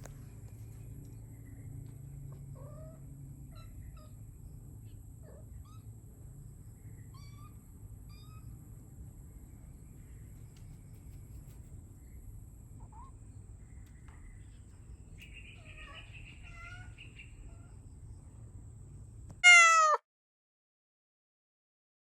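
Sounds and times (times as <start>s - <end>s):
low background rumble: 0.0s - 19.4s
cats meowing: 15.6s - 17.0s, 19.4s - 20.0s.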